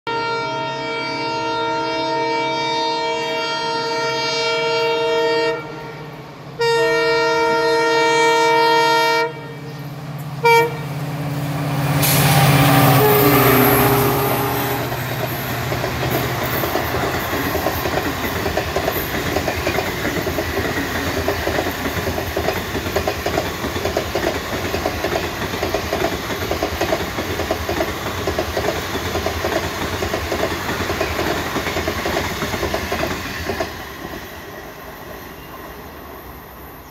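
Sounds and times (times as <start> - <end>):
locomotive horn blasts: 0.1 - 9.8, 10.4 - 11.0, 12.2 - 15.0
diesel engine passing: 9.8 - 17.6
train wheels clacking over rail joints: 14.9 - 34.3.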